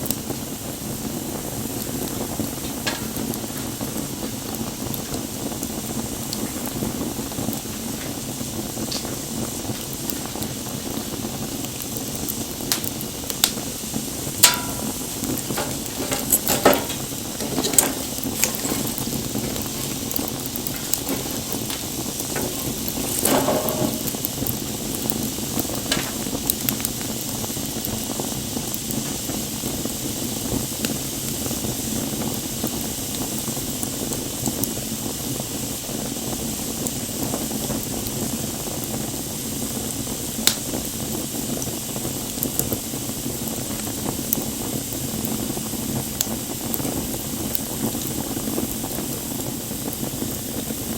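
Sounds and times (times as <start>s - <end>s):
bonfire crackling and popping: 0.0s - 50.9s.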